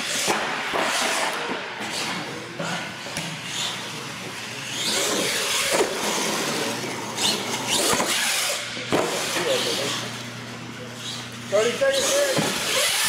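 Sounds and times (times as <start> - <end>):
toy truck motor whining: 11.0 - 13.0.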